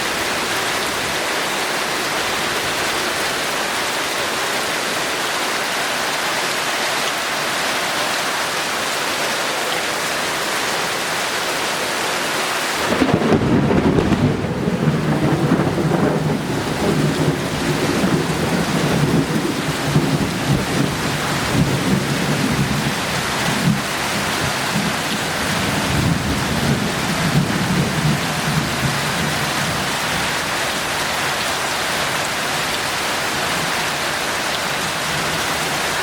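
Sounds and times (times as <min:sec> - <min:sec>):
heavy rain hissing: 0:00.0 - 0:36.0
rumble of thunder: 0:12.8 - 0:23.0.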